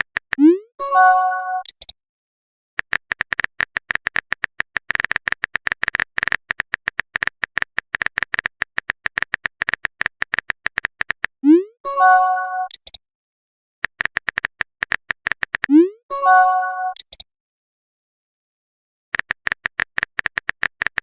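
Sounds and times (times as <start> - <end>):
phone keyboard typing clicks: 2.8 - 11.4, 13.8 - 15.7, 16.9 - 17.3, 19.2 - 21.0.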